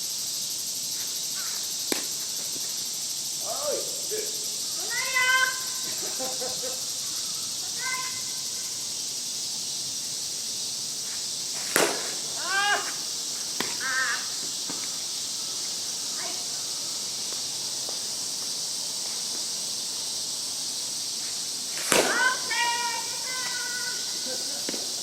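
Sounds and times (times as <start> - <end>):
high-pitched hiss: 0.0 - 25.0
bat cracking against ball: 1.9 - 2.6, 11.1 - 14.9, 21.7 - 22.6.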